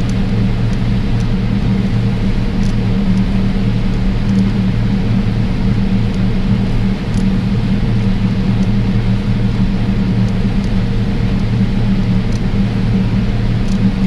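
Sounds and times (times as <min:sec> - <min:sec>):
faint ticks: 0:00.0 - 0:04.6, 0:05.7 - 0:06.3, 0:07.1 - 0:07.4, 0:08.5 - 0:08.8, 0:10.0 - 0:14.0.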